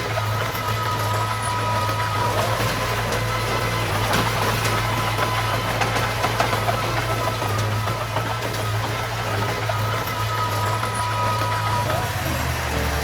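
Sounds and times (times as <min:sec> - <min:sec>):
heavy machinery diesel engine: 0:00.0 - 0:13.0.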